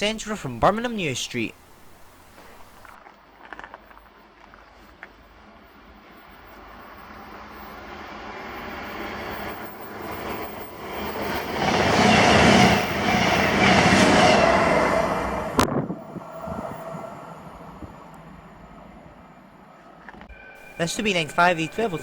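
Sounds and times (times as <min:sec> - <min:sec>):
diesel train passing: 0:05.1 - 0:22.0.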